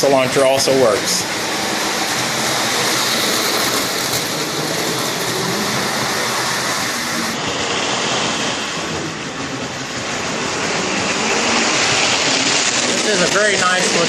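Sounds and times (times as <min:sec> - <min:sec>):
toy train wheels on rails: 0:00.0 - 0:08.5
small electric motor whirring: 0:02.2 - 0:07.4.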